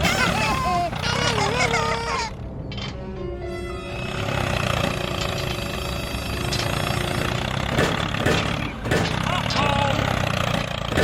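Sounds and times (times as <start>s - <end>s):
small engine running: 3.9s - 11.0s.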